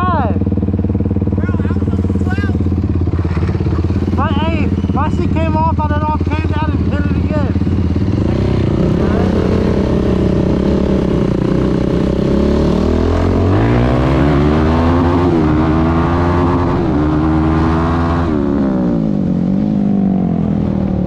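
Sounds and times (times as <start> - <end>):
quad engine revving: 0.0 - 21.0.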